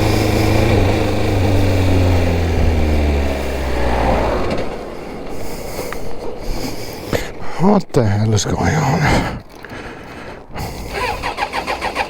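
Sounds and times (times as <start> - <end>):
motorcycle engine spluttering: 0.0 - 7.4, 10.6 - 12.0.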